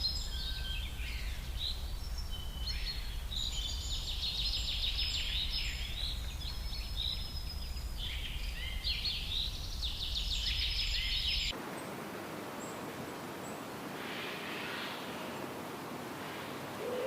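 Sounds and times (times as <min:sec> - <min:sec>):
songbirds chirping and trilling: 0:00.0 - 0:17.0.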